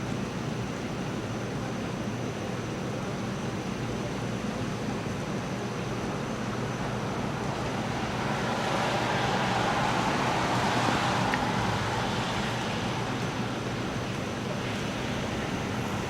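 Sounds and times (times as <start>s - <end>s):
steady rain: 0.0s - 16.0s
tyres hissing on wet road: 5.8s - 16.0s.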